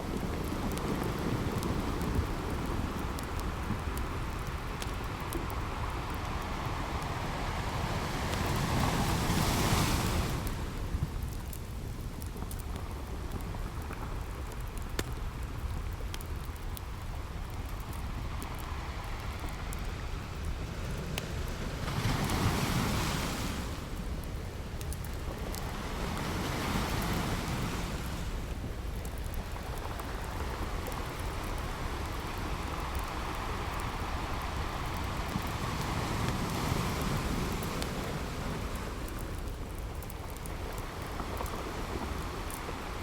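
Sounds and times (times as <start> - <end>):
campfire crackling: 0.0 - 43.0
ocean waves washing onto beach: 0.0 - 43.0.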